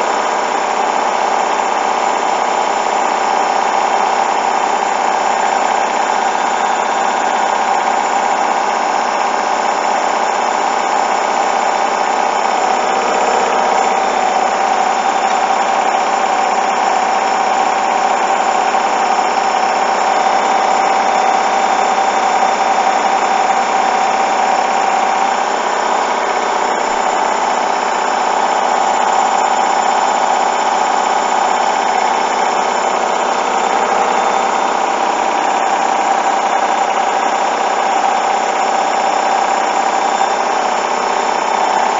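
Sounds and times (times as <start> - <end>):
washing machine spinning: 0.0 - 41.9.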